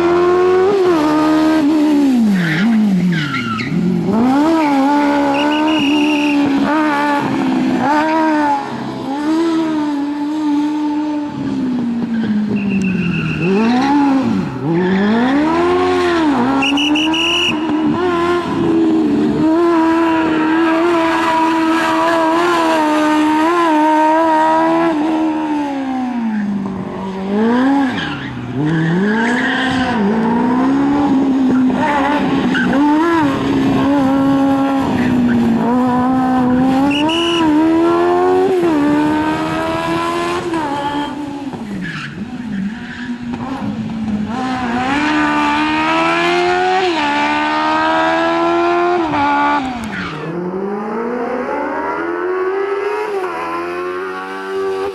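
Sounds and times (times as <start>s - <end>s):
motorcycle engine revving hard: 0.0s - 3.0s, 3.7s - 12.6s, 13.2s - 26.2s, 27.2s - 41.6s, 43.4s - 54.9s.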